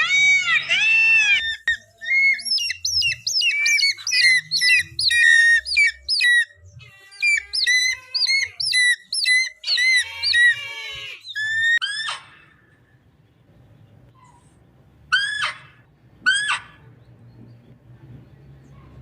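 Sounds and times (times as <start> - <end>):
bird whistled chirps: 1.2 - 6.6, 7.2 - 10.6.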